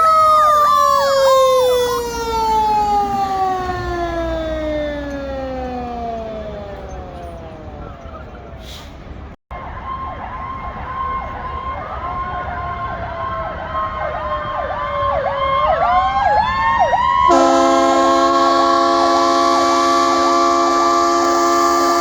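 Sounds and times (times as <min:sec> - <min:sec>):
fire truck sirens wailing: 0:00.0 - 0:22.0
air horn blast: 0:17.3 - 0:22.0.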